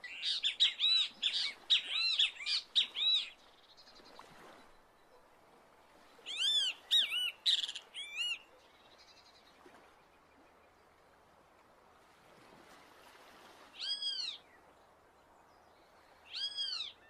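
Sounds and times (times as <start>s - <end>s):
bird calling ringing notes: 0.0s - 3.4s, 6.3s - 8.4s.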